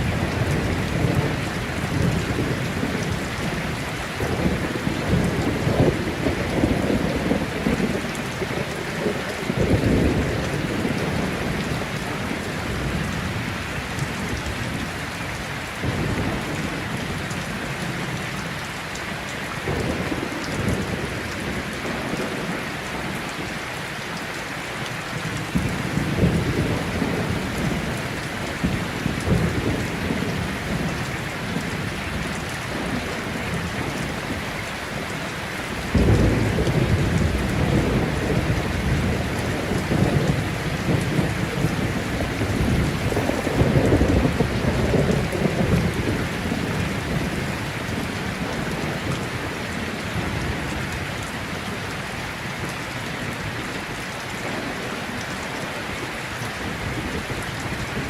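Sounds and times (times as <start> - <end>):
thunder rumbling: 0.0 - 18.6, 25.2 - 52.0
heavy rain falling: 0.0 - 58.0.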